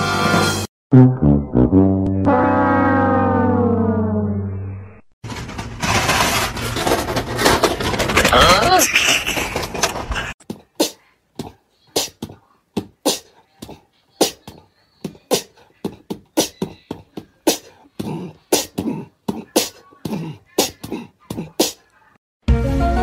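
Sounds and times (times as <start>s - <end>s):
beatbox mouth sounds: 10.2s - 21.9s.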